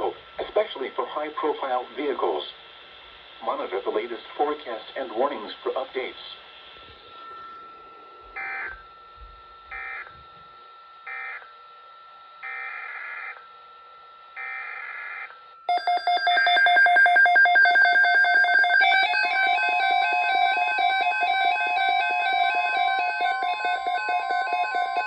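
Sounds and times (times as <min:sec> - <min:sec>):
steady thin electronic tone: 0:06.9 - 0:11.4
warbling electronic alarm: 0:07.0 - 0:11.8, 0:12.4 - 0:25.0.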